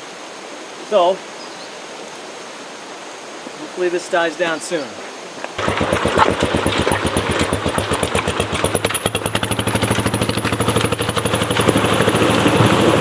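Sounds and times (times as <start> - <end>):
motorcycle engine idling: 5.6 - 13.0.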